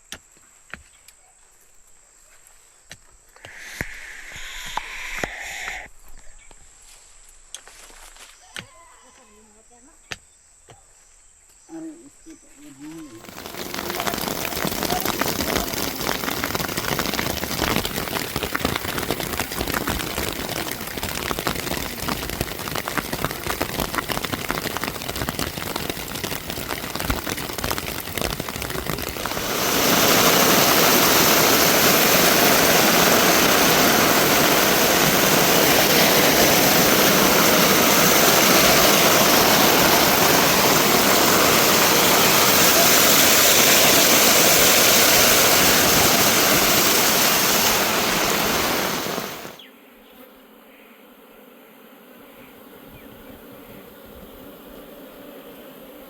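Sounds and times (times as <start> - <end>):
crackling hiss: 3.2 - 8.2, 12.8 - 49.7
fast-flowing water rushing: 13.2 - 49.6.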